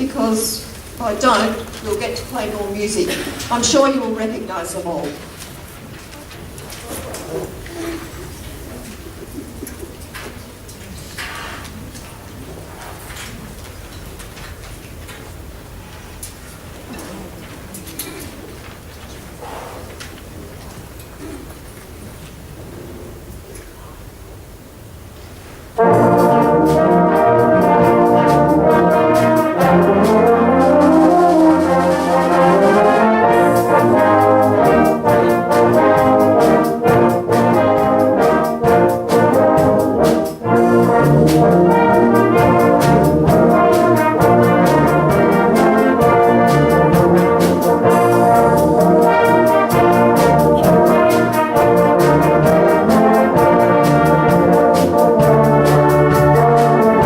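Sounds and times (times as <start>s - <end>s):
brass band playing: 25.7s - 57.0s
steady percussion beat: 25.8s - 57.0s.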